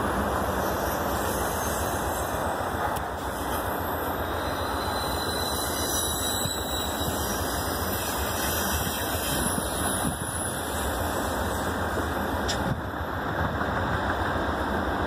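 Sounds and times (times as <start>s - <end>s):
train wheels rumbling on rails: 0.0s - 15.0s
wheel squeal: 0.4s - 11.8s.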